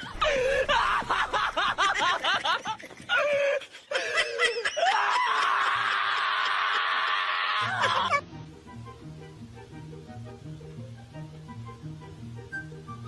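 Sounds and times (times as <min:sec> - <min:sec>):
person laughing hard: 0:00.0 - 0:08.2.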